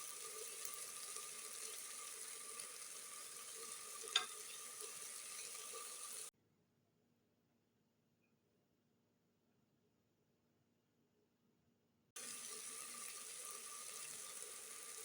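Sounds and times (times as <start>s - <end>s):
food sizzling in hot oil: 0.0s - 6.3s, 12.2s - 15.0s.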